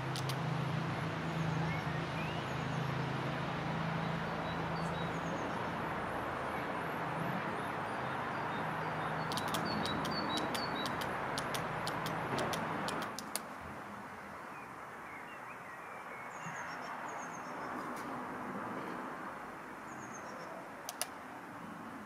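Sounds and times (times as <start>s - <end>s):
birds chirping: 4.0s - 13.4s.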